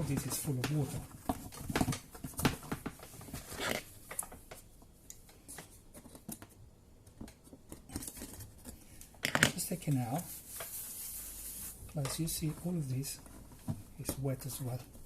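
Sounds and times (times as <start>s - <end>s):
paper towel rustling: 9.7s - 13.2s.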